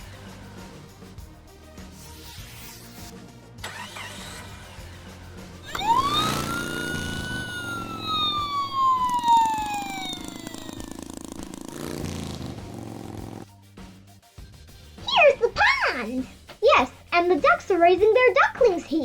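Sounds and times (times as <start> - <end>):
background music: 0.0 - 19.0
siren wail: 5.7 - 11.1.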